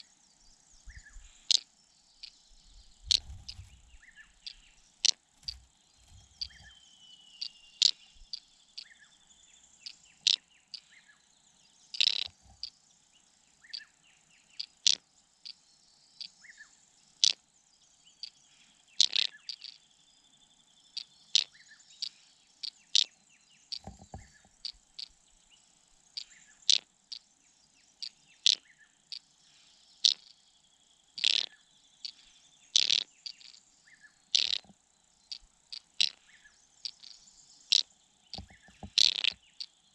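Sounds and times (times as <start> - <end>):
small birds chip calls: 0.0 - 39.9.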